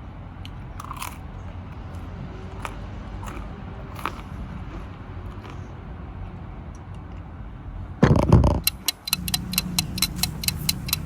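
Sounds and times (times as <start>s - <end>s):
low steady hum: 8.0s - 11.0s
rapid even ticking: 8.6s - 11.0s.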